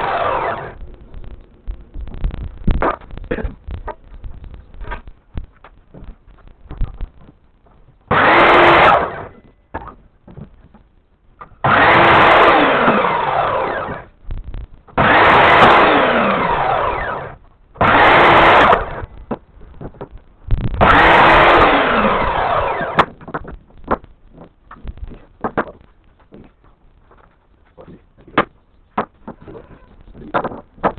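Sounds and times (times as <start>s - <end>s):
electric power tool motor: 0.0s - 0.8s, 8.1s - 9.4s, 11.6s - 14.1s, 15.0s - 19.1s, 20.8s - 23.1s.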